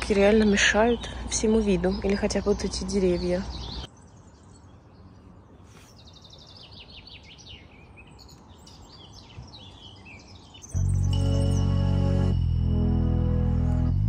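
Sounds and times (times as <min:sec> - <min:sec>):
songbirds chirping: 0:00.0 - 0:12.4
loud music: 0:10.8 - 0:14.0.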